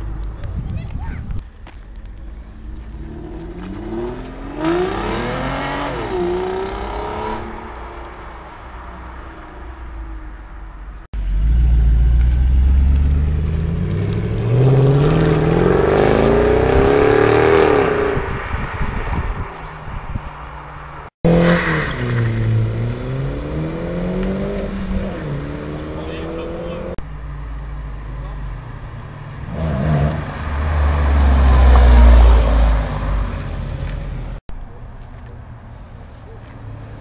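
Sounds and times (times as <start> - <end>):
car engines accelerating: 2.0 - 34.4.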